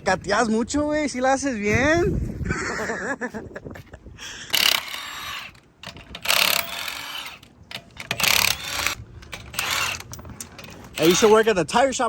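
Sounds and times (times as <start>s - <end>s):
impact wrench spinning lug nuts: 4.5s - 11.6s.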